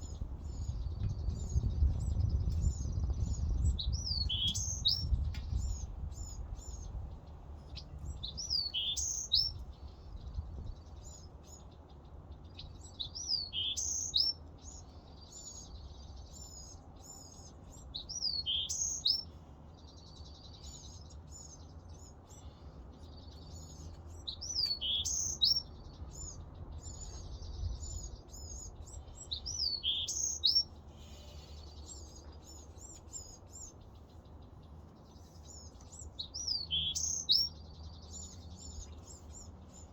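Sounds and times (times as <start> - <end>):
faint low rumble: 0.0 - 11.6
bird chirps: 0.0 - 39.9.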